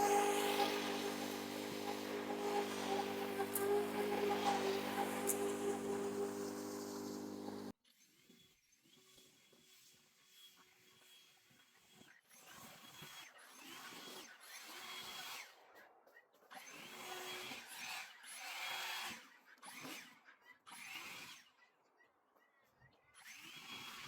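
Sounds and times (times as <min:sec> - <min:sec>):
electric motor spinning up and down: 0:00.0 - 0:07.7.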